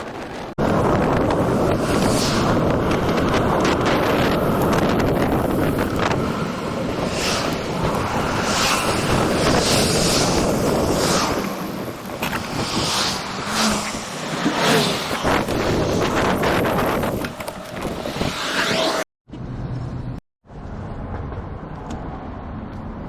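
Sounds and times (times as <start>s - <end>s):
wind buffeting microphone: 0.0s - 18.5s.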